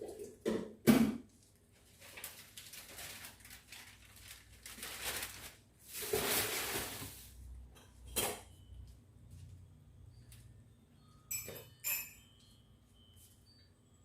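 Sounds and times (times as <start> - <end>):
dishes clinking: 7.7 - 8.7, 11.2 - 12.6.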